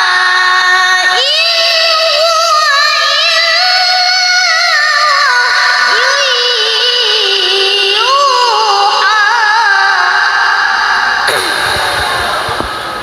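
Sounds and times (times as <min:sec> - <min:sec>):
child reciting melodically: 0:00.0 - 0:10.7.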